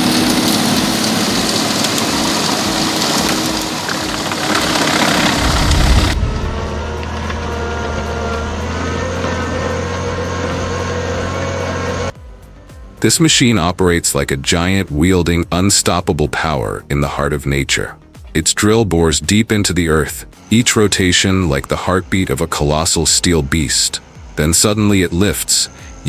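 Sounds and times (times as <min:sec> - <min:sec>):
heavy machinery engine running: 0:00.0 - 0:15.2.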